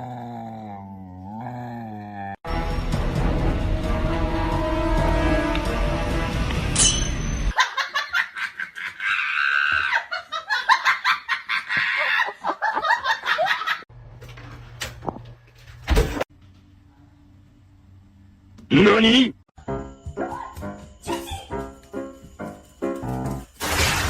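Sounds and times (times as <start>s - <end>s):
background music: 2.5s - 7.5s.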